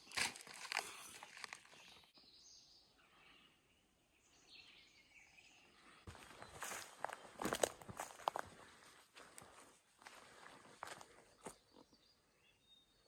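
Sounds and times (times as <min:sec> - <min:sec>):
footsteps on a trail: 0:00.0 - 0:02.1, 0:06.1 - 0:11.9.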